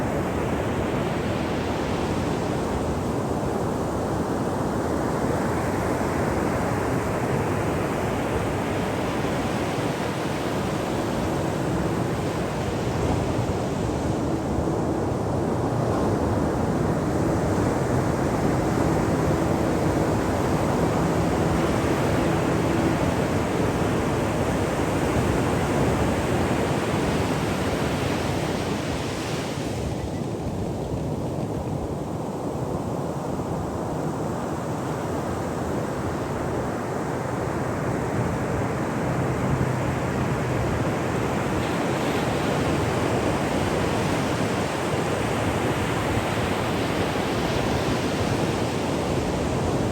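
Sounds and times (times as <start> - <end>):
ocean waves breaking on shore: 0.0 - 49.9.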